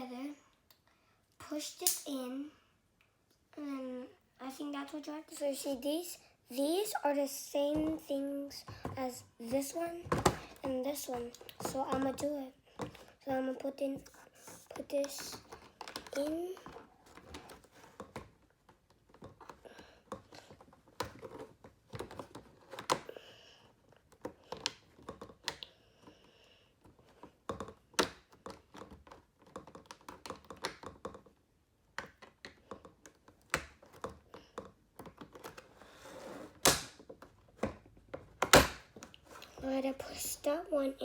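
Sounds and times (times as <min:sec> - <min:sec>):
hard plastic parts clicking: 0:14.8 - 0:23.1, 0:26.8 - 0:35.7.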